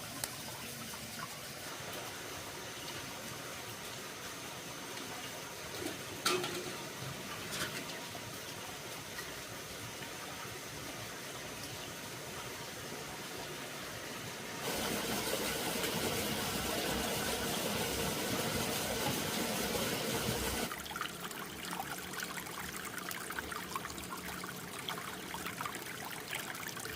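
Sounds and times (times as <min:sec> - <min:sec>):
water trickling with clicks: 0:00.0 - 0:02.1, 0:05.7 - 0:09.4, 0:20.6 - 0:26.9
running water rushing: 0:00.0 - 0:26.9.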